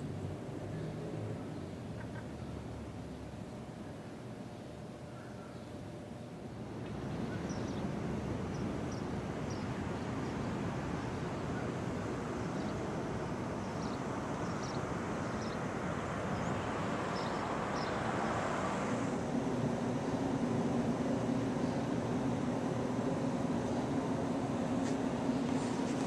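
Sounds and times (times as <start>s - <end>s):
outdoor rushing noise: 6.6s - 26.0s
small birds chirping: 7.1s - 18.5s.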